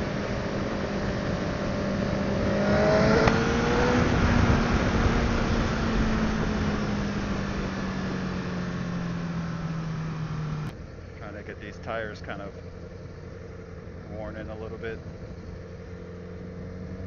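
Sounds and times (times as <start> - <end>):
wind noise: 0.0 - 9.8, 14.0 - 15.7
motorcycle engine pulling hard: 0.0 - 10.7.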